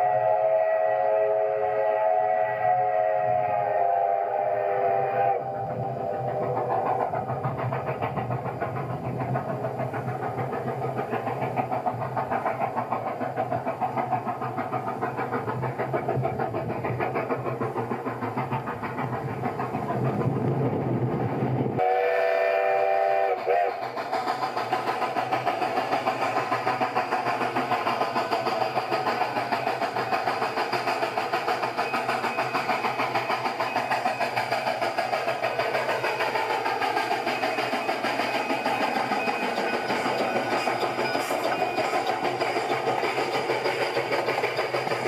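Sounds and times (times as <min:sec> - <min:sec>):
train horn blast: 0:00.0 - 0:05.4, 0:21.8 - 0:23.7
train clatter and rumble: 0:00.0 - 0:45.0.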